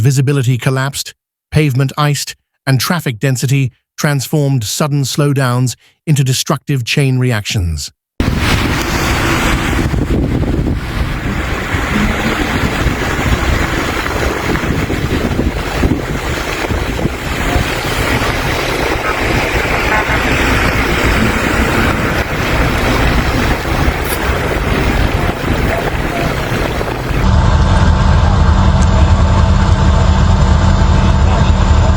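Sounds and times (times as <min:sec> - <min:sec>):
road and traffic noise: 0:08.2 - 0:31.9
wind rumbling on microphone: 0:08.2 - 0:31.9.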